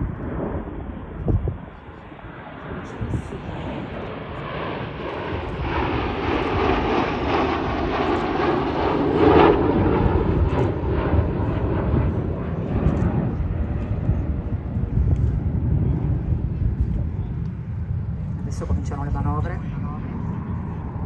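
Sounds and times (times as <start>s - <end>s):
jet aircraft flying past: 0.0s - 21.0s.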